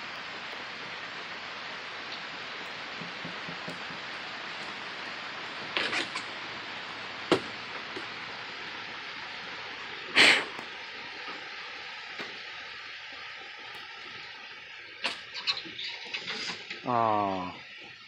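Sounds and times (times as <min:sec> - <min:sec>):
steady rain hiss: 0:00.0 - 0:18.0
short noise bursts: 0:10.0 - 0:11.0.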